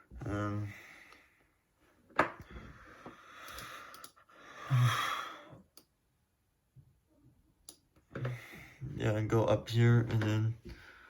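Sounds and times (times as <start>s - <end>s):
breathy voiced sigh: 2.5s - 5.6s.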